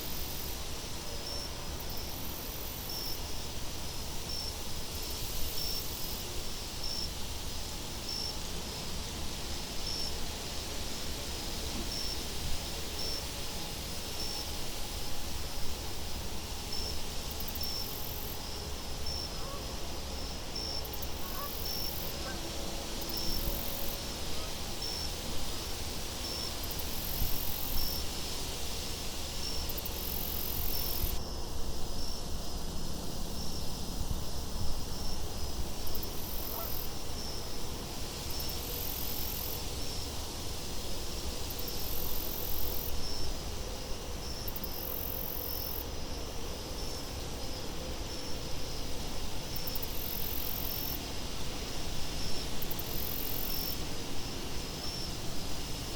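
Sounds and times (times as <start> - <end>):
crickets chirping: 0.0 - 55.9.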